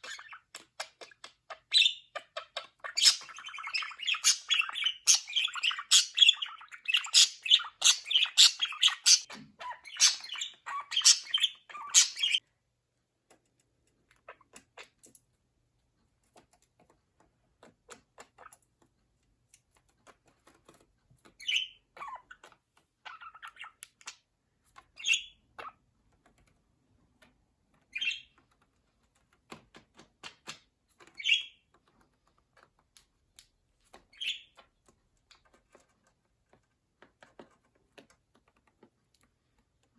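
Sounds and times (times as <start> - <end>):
budgerigars chirping and chattering: 0.0 - 12.4, 21.4 - 24.2, 24.9 - 25.8, 27.9 - 28.4, 31.1 - 31.6, 34.1 - 34.6.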